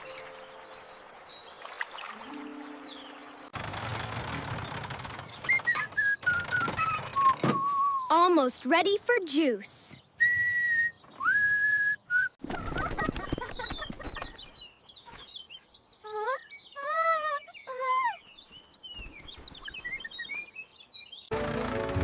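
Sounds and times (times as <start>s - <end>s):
birds chirping: 0.0s - 11.9s, 12.5s - 21.6s
whistle: 5.5s - 8.1s, 10.2s - 12.4s
wings fluttering: 12.4s - 15.3s.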